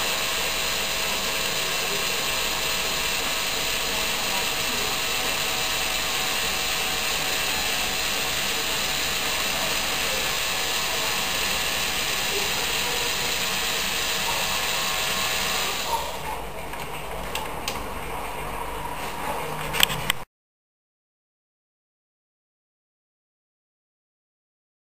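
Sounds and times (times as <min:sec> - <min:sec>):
electric motor whirring through gears: 0:00.0 - 0:16.2.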